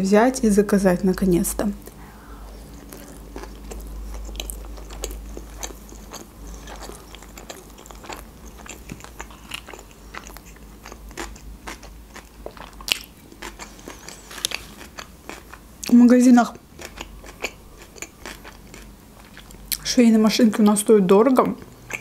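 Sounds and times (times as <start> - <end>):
person chewing with mouth clicks: 1.8 - 15.9, 16.8 - 19.8, 21.5 - 22.0.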